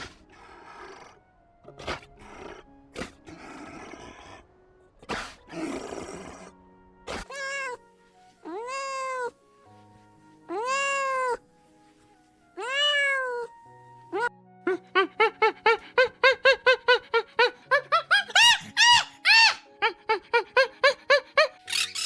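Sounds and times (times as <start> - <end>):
faint background music: 0.0 - 22.0
cat meowing: 8.4 - 9.4, 10.5 - 11.4, 12.6 - 13.6.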